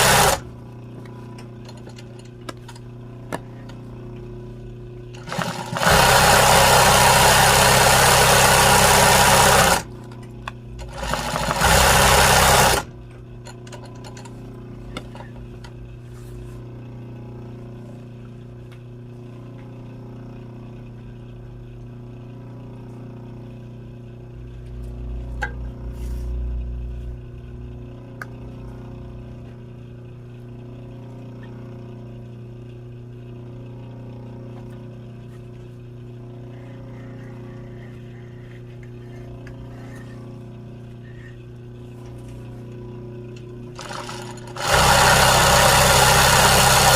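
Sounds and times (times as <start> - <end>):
sewing machine stitching: 0.0 - 0.5, 5.2 - 9.9, 10.8 - 12.9, 43.8 - 46.9
steady low hum: 0.0 - 46.9
low rumble: 24.8 - 29.4.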